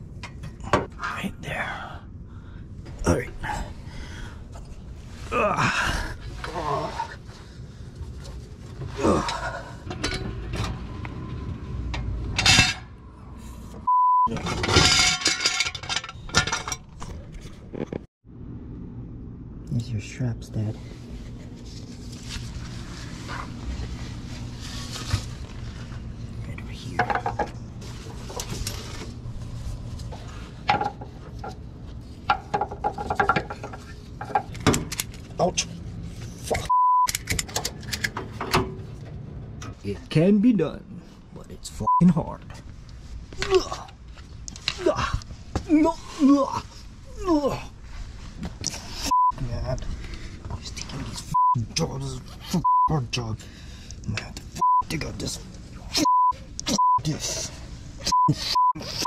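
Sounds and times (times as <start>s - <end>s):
low steady hum: 0.0s - 59.0s
censor bleep tone: 13.9s - 14.3s, 36.7s - 37.1s, 51.3s - 51.6s
metallic clinks and scrapes: 14.3s - 17.5s.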